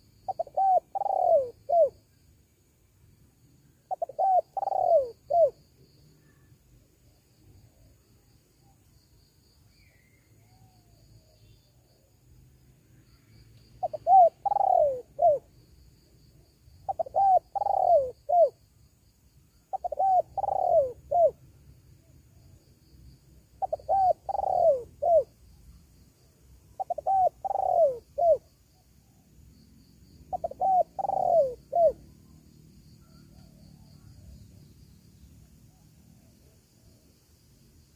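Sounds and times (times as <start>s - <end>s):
dove cooing: 0.0s - 2.0s, 3.9s - 5.6s, 13.8s - 15.5s, 16.9s - 18.6s, 19.7s - 21.4s, 23.6s - 25.4s, 26.8s - 28.5s, 30.3s - 32.2s.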